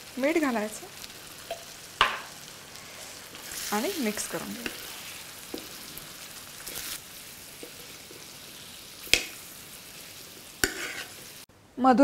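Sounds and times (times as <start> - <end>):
chicken sizzling on pan: 0.0 - 11.5.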